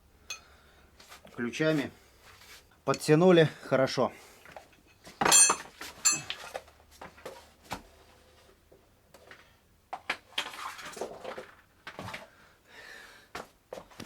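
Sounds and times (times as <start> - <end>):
steel hand tools clinking: 0.3 - 0.5, 4.8 - 6.5.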